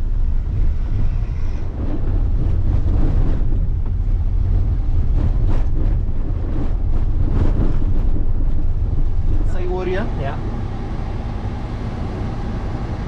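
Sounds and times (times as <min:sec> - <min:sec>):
vehicle rumble from inside: 0:00.0 - 0:13.0
wind noise on microphone: 0:00.0 - 0:13.0.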